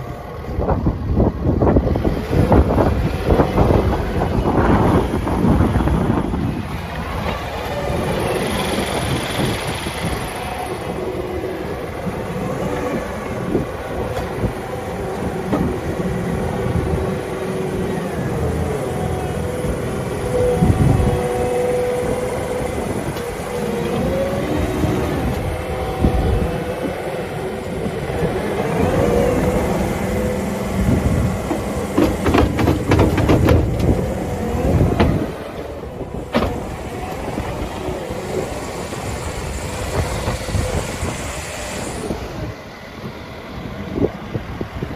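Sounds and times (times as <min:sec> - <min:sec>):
track loader engine rumbling: 0:00.0 - 0:44.9
rattling knocks: 0:31.0 - 0:34.2.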